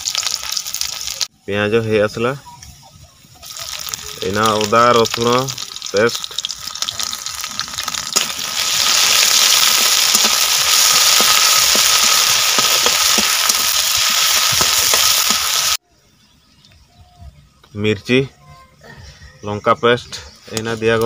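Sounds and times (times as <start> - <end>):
onions sizzling in hot oil: 0.0 - 1.3, 3.4 - 15.8.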